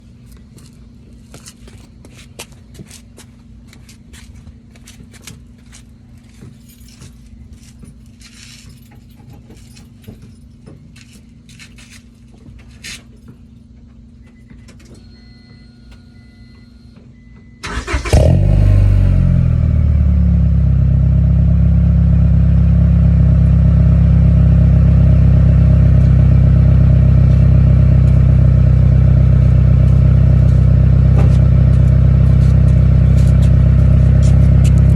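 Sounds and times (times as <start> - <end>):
keys jingling: 6.2 - 13.3
car engine cranking and starting: 17.6 - 34.9
car engine idling: 17.7 - 34.9.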